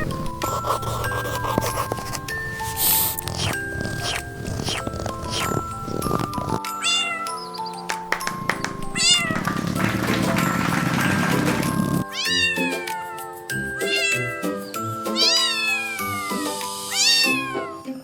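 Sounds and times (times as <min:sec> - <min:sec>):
light background music: 0:00.0 - 0:18.0
cat meowing: 0:03.3 - 0:07.4, 0:08.8 - 0:09.8, 0:12.1 - 0:12.9, 0:13.8 - 0:14.4, 0:15.1 - 0:17.8.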